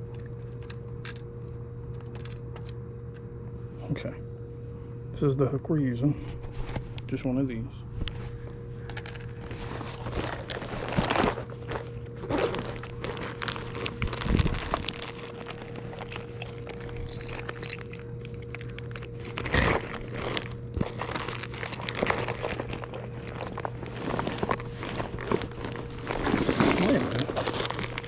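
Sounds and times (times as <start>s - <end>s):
steady low hum: 0.0s - 28.0s
hands rummaging through tackle: 8.8s - 28.0s.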